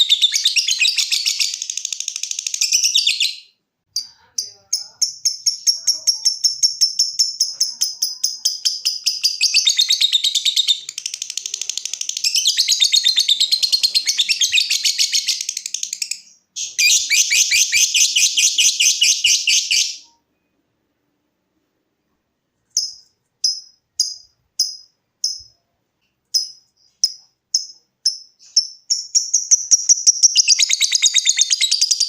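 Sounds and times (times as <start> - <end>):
lovebird chattering trill: 4.0 - 20.1, 26.3 - 32.0.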